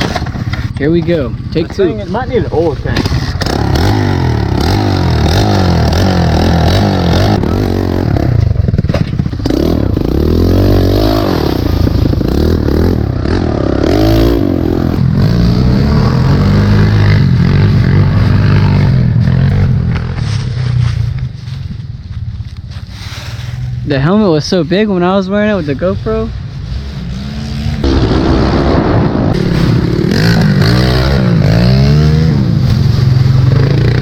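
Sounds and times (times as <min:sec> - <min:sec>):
bike rattling over rough ground: 0:00.0 - 0:07.4, 0:08.0 - 0:10.4
motorbike engine revving: 0:00.0 - 0:20.9, 0:26.5 - 0:34.0.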